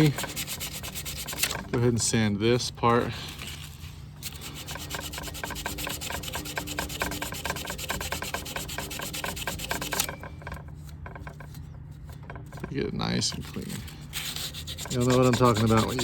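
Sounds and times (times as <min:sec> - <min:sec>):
sandpaper rubbing on rusty metal: 0:00.0 - 0:01.7, 0:03.3 - 0:10.2, 0:13.2 - 0:16.0.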